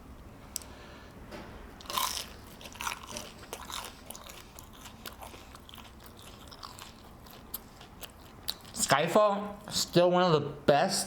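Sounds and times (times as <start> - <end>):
biting into crunchy food: 1.8 - 8.8
chewing with crackling clicks: 1.8 - 8.8.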